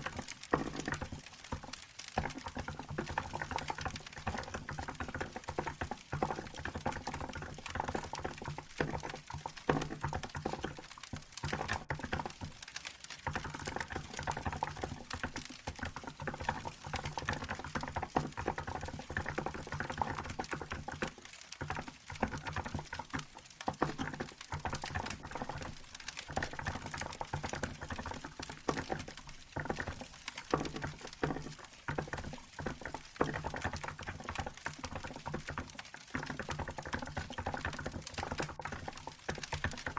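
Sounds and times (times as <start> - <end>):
wood fire crackling: 0.0 - 6.8, 7.4 - 13.4, 19.0 - 33.4.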